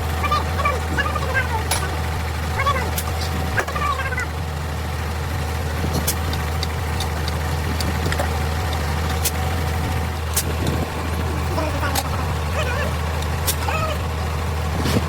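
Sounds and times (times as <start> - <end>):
engine idling: 0.0 - 15.0
metallic clinks of tools on metal: 1.7 - 2.1.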